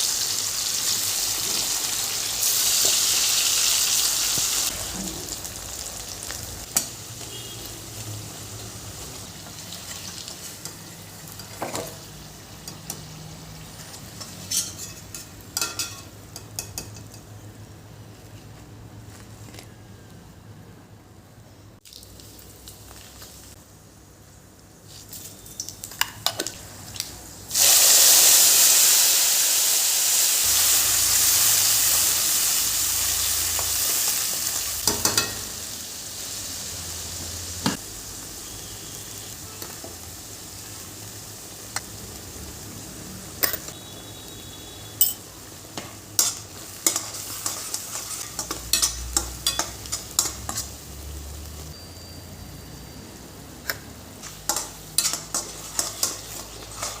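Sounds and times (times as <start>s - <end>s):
food sizzling in hot oil: 0.0s - 17.3s, 21.8s - 23.7s, 24.8s - 57.0s
spatula scraping a pan: 46.2s - 50.8s, 54.2s - 57.0s.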